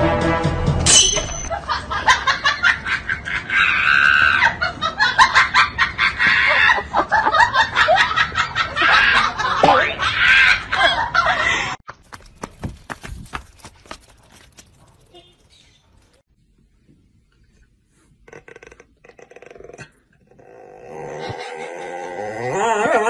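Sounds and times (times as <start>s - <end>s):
people laughing: 1.5s - 11.8s
snickering and chuckling: 18.3s - 23.0s.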